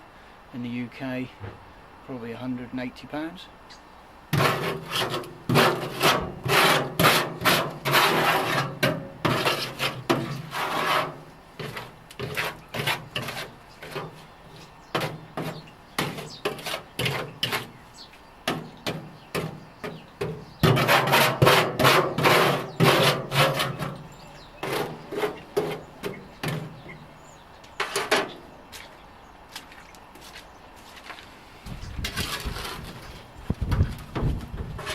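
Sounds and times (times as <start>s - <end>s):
brush scraping metal tank: 4.3s - 28.9s, 31.7s - 34.9s.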